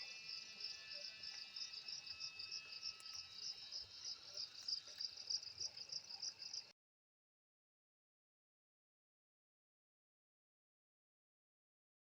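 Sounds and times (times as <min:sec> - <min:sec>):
cicada buzzing: 0:00.0 - 0:06.0.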